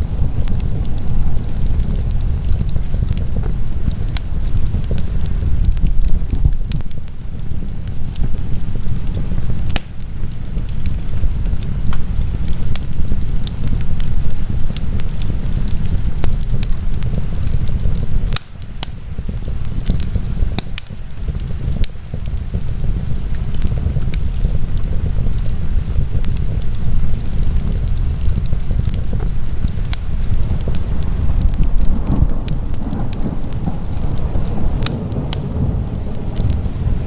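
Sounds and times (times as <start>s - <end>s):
fire crackling and popping: 0.0s - 37.0s
fire low rumble: 0.0s - 37.0s.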